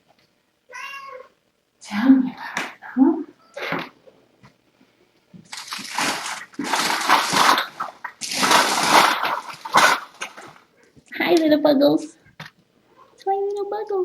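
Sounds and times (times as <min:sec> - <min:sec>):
rustling scraping noise: 0:05.5 - 0:10.6.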